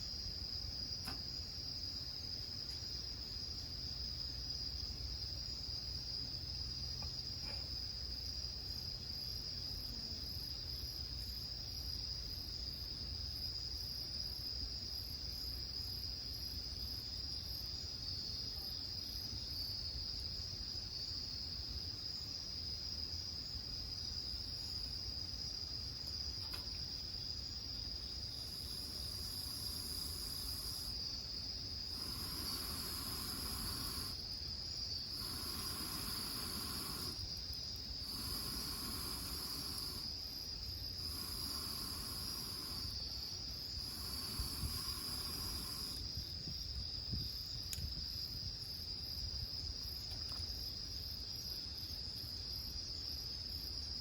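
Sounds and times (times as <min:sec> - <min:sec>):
crickets trilling: 0:00.0 - 0:54.0
insect calling in bursts: 0:28.4 - 0:46.3.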